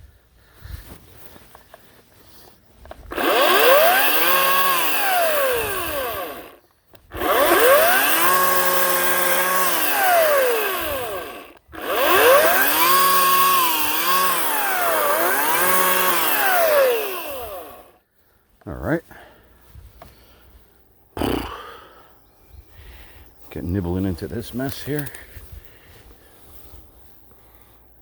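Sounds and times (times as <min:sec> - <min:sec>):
electric chainsaw motor whining: 0:02.8 - 0:18.0, 0:21.2 - 0:21.5.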